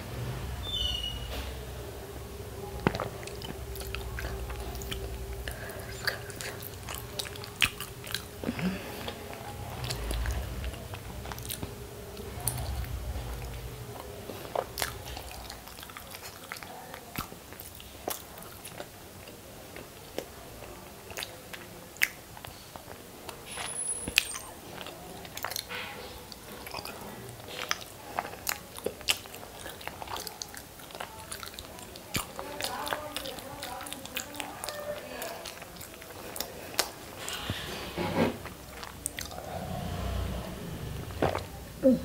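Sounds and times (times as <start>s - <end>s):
chewing and biting eggs: 2.6s - 40.4s
wet mouth clicks: 2.8s - 11.8s.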